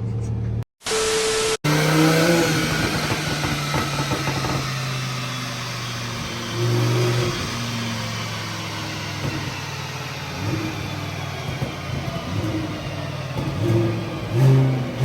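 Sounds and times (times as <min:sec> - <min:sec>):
car engine running at low revs: 0:01.7 - 0:15.0.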